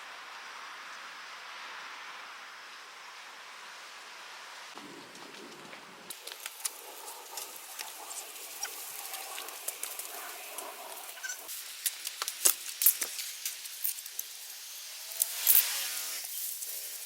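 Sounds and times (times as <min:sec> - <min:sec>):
rustling: 0:04.8 - 0:17.0.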